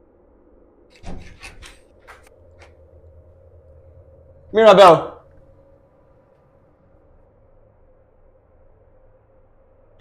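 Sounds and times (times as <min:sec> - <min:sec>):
faint steady hum: 0:00.0 - 0:10.0
man's loud call: 0:04.5 - 0:05.2.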